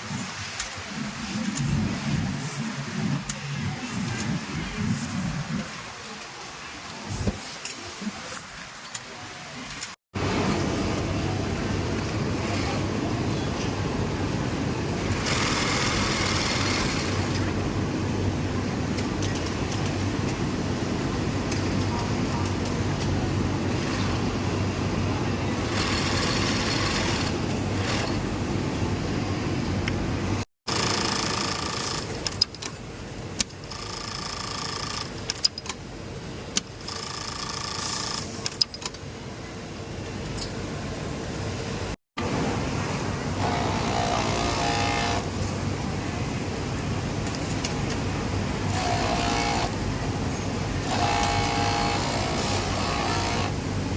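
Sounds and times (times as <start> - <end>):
industrial sewing machines running: 12.2 - 13.1, 15.0 - 17.6, 23.2 - 28.4, 30.7 - 32.2, 33.7 - 35.1, 36.8 - 38.4, 43.3 - 45.3, 48.6 - 49.9, 50.7 - 53.8
sewing machine sharp clicks: 30.7 - 32.5, 50.8 - 53.5.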